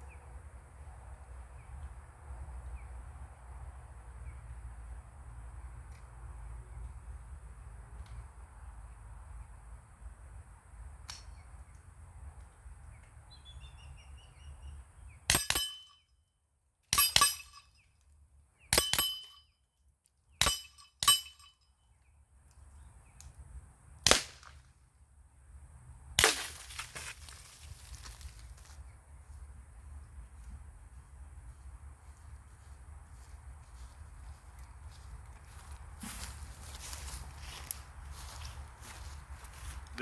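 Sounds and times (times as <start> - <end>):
air rifle shots: 15.3 - 15.8, 17.0 - 17.6, 20.4 - 21.4, 24.0 - 24.5
steel targets ringing: 15.3 - 16.0, 17.0 - 17.7, 18.8 - 19.5, 20.4 - 21.6.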